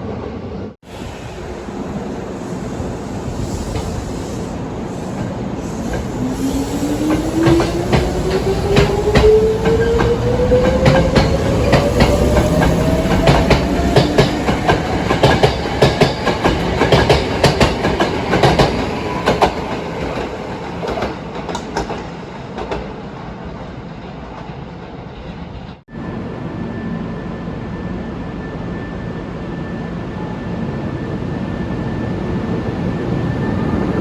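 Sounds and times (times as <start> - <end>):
train wheels clacking over rail joints: 7.0 - 22.9.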